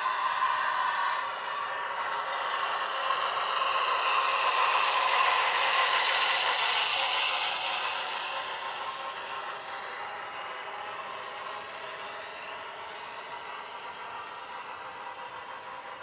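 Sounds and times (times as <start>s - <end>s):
model train whirring on track: 0.0s - 16.0s.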